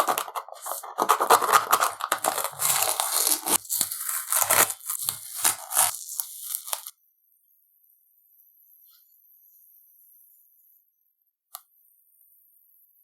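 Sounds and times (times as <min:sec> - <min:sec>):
masking tape peeling: 0:00.0 - 0:06.9.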